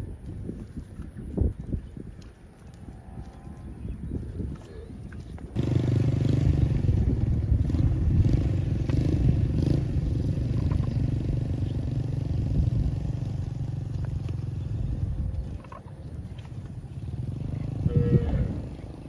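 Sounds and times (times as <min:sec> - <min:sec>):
small engine rumbling: 0:05.4 - 0:19.0.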